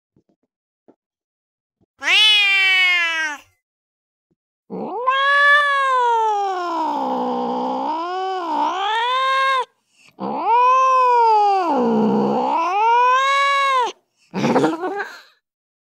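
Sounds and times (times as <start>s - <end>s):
angry cat yowling: 2.0s - 3.5s, 4.7s - 14.0s.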